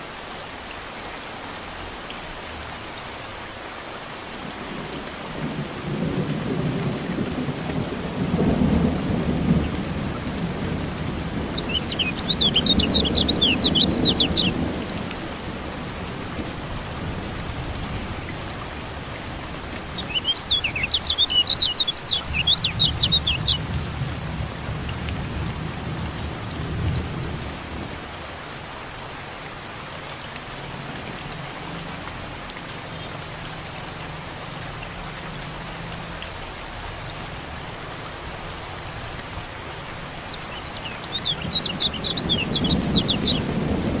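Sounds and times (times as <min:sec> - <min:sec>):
steady rain: 0:00.0 - 0:44.0
low thunder rumbles: 0:04.7 - 0:21.2, 0:41.1 - 0:44.0
bird twittering chirps: 0:11.2 - 0:14.6, 0:19.6 - 0:23.7, 0:40.0 - 0:43.5.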